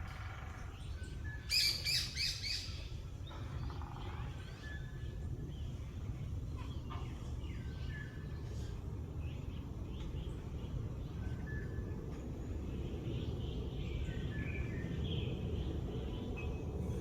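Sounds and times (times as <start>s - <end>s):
bird chirps: 0.1s - 5.2s.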